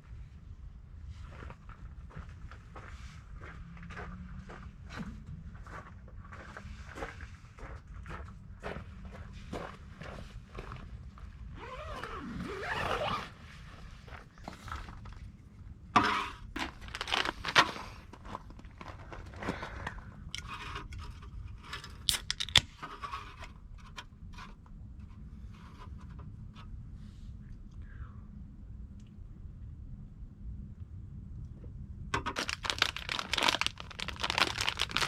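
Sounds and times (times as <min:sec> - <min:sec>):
scraping and rustling handling: 0:16.0 - 0:26.2, 0:32.3 - 0:35.0.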